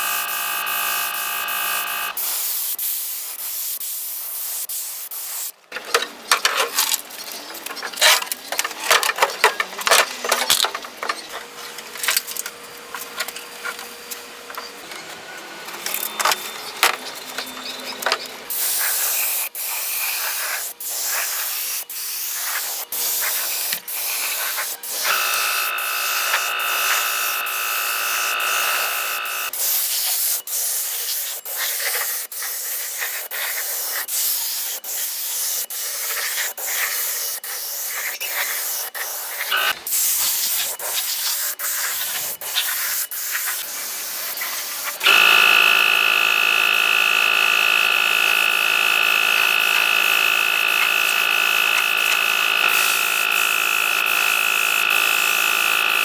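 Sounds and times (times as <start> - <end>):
multi-tone whine: 0.0 - 2.2, 25.0 - 29.5.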